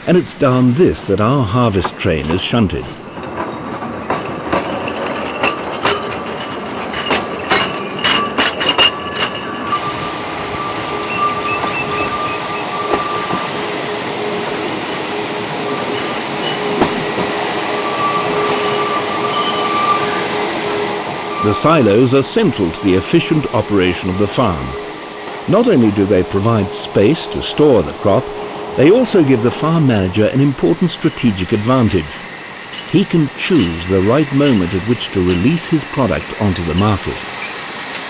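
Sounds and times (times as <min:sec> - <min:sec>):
wagon couplings clanking: 0:01.7 - 0:09.7, 0:32.7 - 0:36.6
train wheels squealing: 0:06.9 - 0:14.0, 0:15.6 - 0:30.0, 0:32.2 - 0:38.0.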